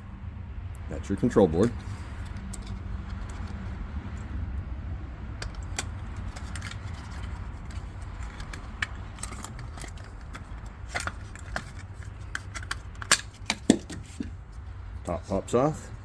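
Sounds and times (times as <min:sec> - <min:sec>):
plastic connectors clicking and rattling: 0:01.6 - 0:04.3, 0:05.4 - 0:14.3.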